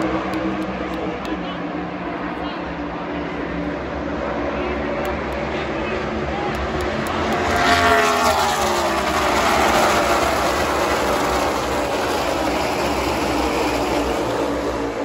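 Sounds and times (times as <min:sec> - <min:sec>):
race truck engines passing: 0:00.0 - 0:15.0
steady din of engines: 0:00.0 - 0:15.0.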